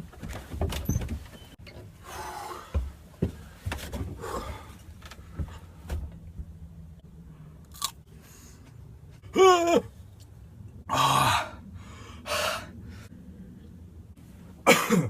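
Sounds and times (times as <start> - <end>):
person chewing: 7.6 - 8.0.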